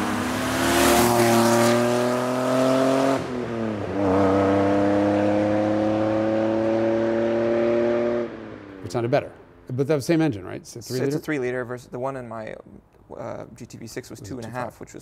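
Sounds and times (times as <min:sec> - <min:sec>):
car engine accelerating: 0:00.0 - 0:09.1.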